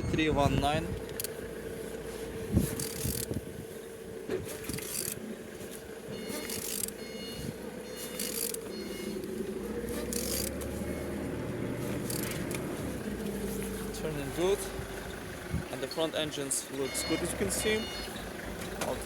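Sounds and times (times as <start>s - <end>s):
engine turned over by hand: 0.0s - 19.0s
faint high beeping: 6.1s - 9.3s, 16.8s - 18.2s.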